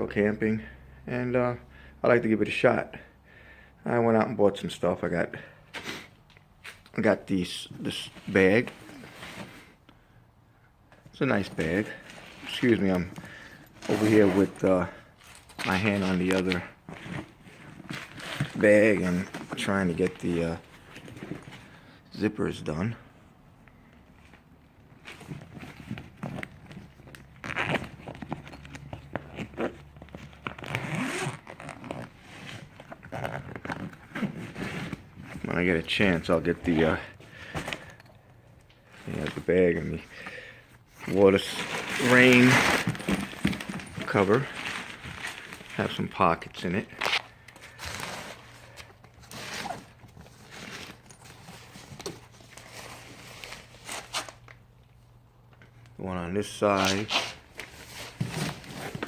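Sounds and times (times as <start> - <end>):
fabric bag rustling: 11.4 - 21.7, 41.1 - 46.0
zippers opening and closing: 13.7 - 16.2, 27.3 - 35.2, 49.2 - 51.7
zipper rasps: 29.2 - 35.2.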